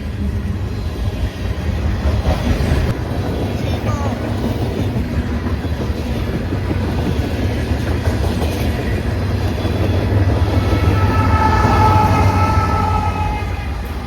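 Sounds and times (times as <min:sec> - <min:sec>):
train rumbling past: 0:00.0 - 0:14.0
steady high tones: 0:09.6 - 0:14.0.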